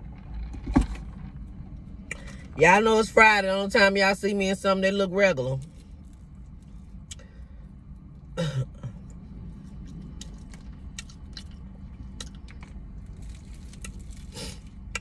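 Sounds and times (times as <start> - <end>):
steady low hum: 0.0 - 15.0
chewing crispy chicken: 9.0 - 15.0.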